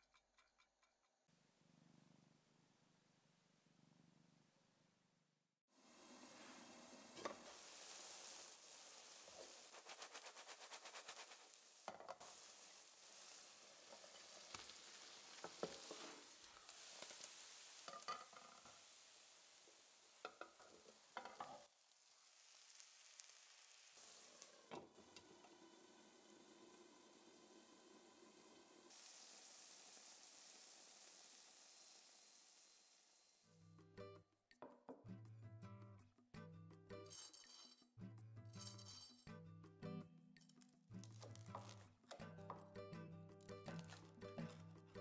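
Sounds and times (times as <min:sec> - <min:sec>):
batter sizzling in a pan: 0:05.7 - 0:33.5, 0:43.5 - 0:44.5
glass lid clinking: 0:17.9 - 0:18.8.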